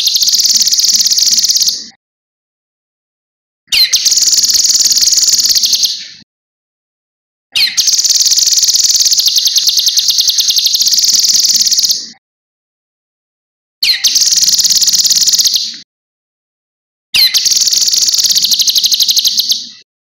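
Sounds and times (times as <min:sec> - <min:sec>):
bird high-pitched trills: 0:00.0 - 0:01.8, 0:03.7 - 0:06.2, 0:07.6 - 0:12.1, 0:13.8 - 0:15.8, 0:17.2 - 0:19.8.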